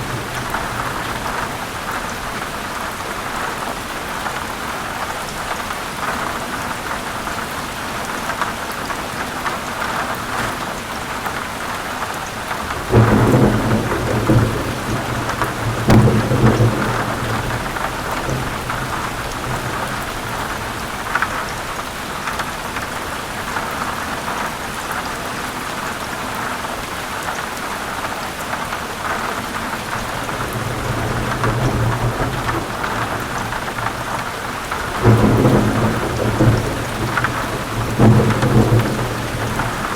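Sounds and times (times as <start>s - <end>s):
thunder clap and rumble: 0.0s - 2.8s, 12.4s - 22.8s, 29.2s - 39.9s
heavy rain falling: 0.0s - 39.9s.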